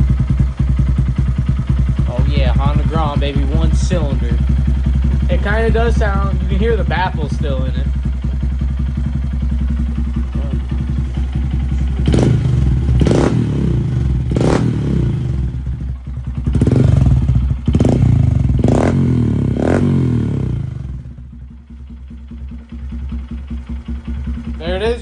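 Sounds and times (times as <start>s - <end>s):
motorcycle engine idling and revving: 0.0s - 25.0s.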